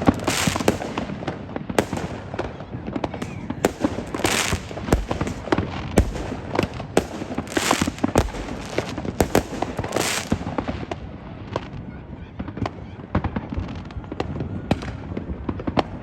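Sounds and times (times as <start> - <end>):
fireworks crackling: 0.0 - 11.4
fireworks bangs: 0.0 - 11.7.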